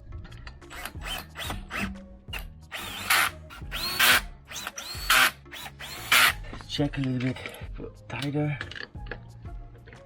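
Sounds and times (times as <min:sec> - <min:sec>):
power tool running lug nuts: 0:02.7 - 0:06.4.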